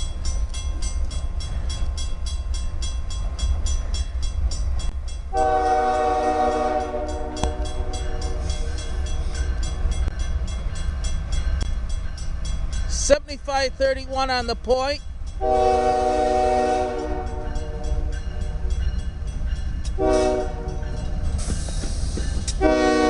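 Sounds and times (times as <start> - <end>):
crossing bell ringing: 0.0 - 23.0
diesel train rumble: 0.0 - 23.0
locomotive air horn: 5.3 - 7.8, 15.4 - 17.5, 20.0 - 20.8, 22.6 - 23.0.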